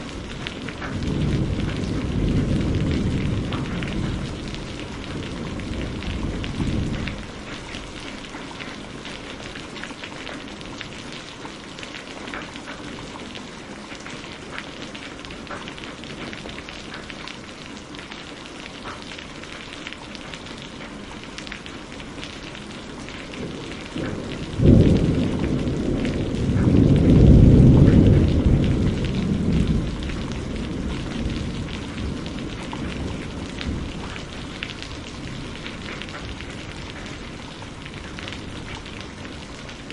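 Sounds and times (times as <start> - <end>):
thunder rumbling: 0.0 - 9.7, 22.5 - 39.9
steady rain falling: 0.0 - 39.9.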